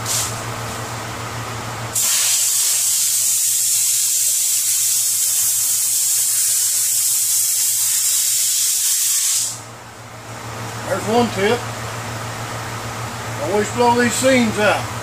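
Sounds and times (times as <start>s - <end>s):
air blow gun hissing: 0.0s - 0.4s, 2.0s - 9.7s.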